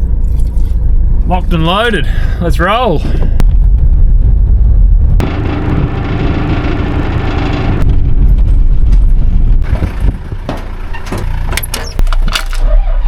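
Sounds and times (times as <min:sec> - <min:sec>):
vehicle engine rumble: 0:00.0 - 0:13.0
sharp clicks and rattles: 0:05.2 - 0:12.7.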